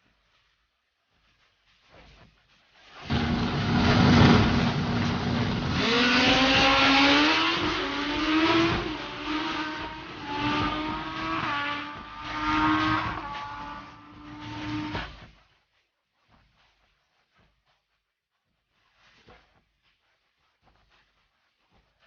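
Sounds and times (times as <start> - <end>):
motorcycle accelerating through gears: 3.0 - 15.2.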